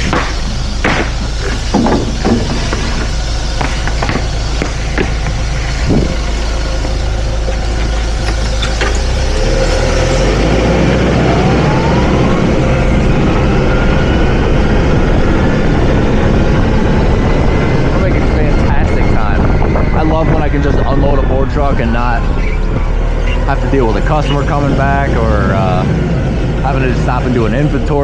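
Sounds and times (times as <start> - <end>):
knocks and clunks: 0.0 - 6.2
engine revving with rising whine: 0.0 - 28.0
forklift engine running: 0.0 - 28.0.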